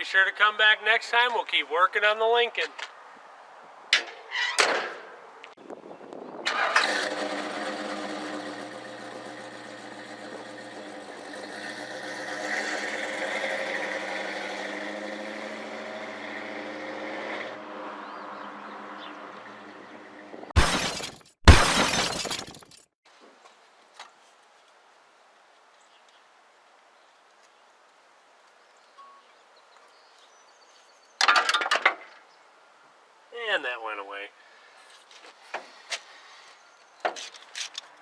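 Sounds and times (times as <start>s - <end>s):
car engine starting and running: 6.4s - 17.0s
loud thumps: 20.6s - 22.8s.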